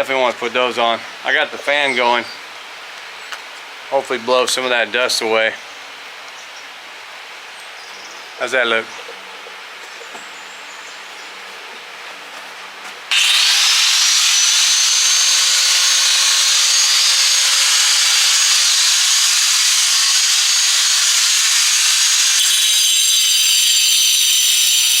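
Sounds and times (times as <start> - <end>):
angle grinder cutting brick: 13.1 - 25.0
fan humming: 13.1 - 25.0.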